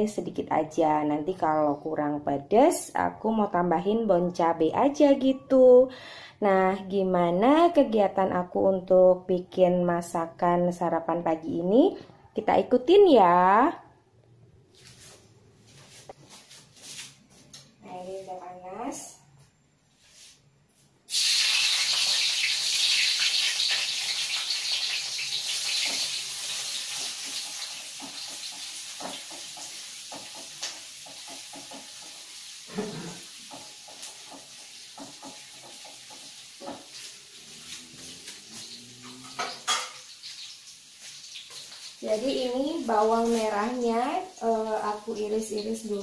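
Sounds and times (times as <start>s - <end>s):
shallots sizzling in oil: 21.1s - 46.0s
utensil knocking against pan: 33.5s - 37.0s.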